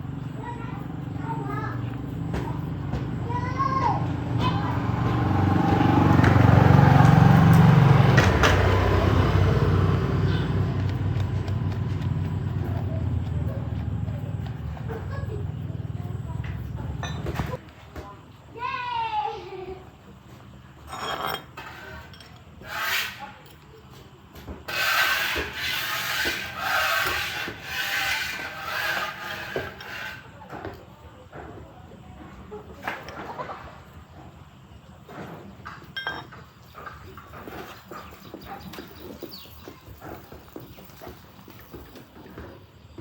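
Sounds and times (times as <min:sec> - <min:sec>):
engine running: 0:00.0 - 0:17.6.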